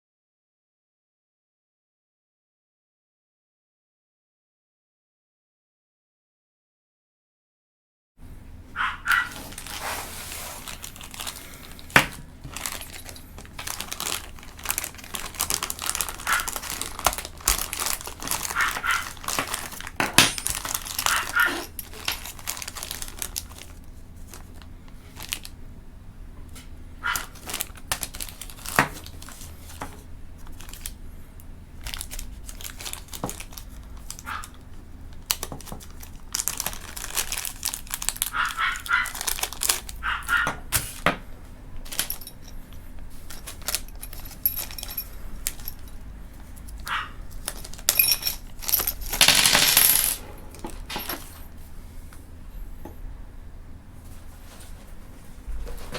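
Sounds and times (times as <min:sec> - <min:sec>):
packaging crinkling and rustling: 0:09.1 - 0:25.6, 0:27.1 - 0:31.1, 0:31.8 - 0:41.2, 0:41.8 - 0:51.6.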